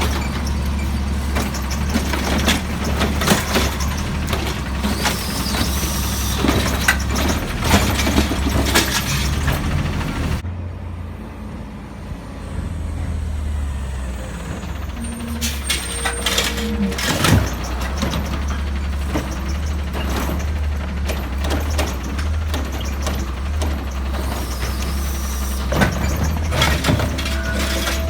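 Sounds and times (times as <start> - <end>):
diesel truck engine: 0.0 - 28.0
brief whine: 14.1 - 17.5.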